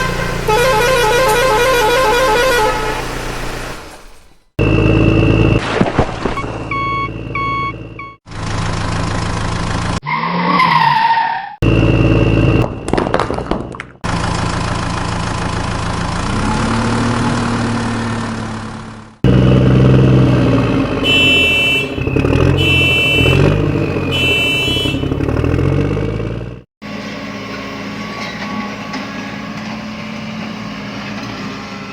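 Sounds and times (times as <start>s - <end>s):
honk-like tones: 0.0s - 3.3s, 21.0s - 25.3s
engine hum: 0.0s - 31.9s
short beeps: 6.4s - 8.2s.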